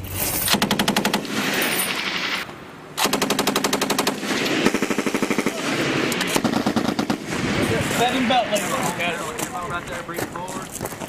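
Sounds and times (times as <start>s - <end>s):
machine gun firing bursts: 0.4s - 2.4s, 3.0s - 7.9s.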